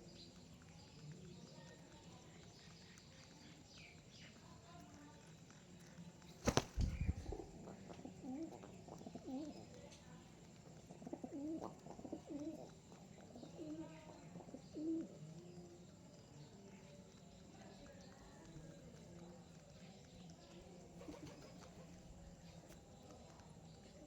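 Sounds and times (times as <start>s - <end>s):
pigeons cooing: 6.5s - 10.0s, 10.6s - 15.3s, 20.9s - 22.8s.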